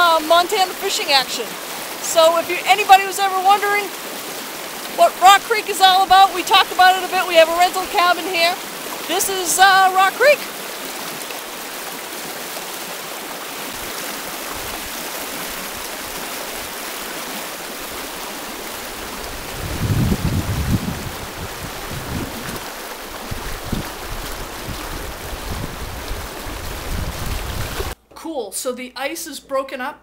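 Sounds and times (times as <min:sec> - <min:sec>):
stream rushing: 0:00.0 - 0:28.0
wind buffeting microphone: 0:18.9 - 0:28.0.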